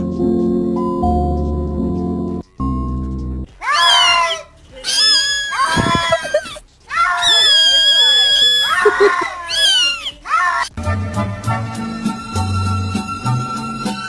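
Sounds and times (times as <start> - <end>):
music: 0.0 - 4.8, 10.7 - 14.0
loud high-pitched screams: 3.6 - 10.8.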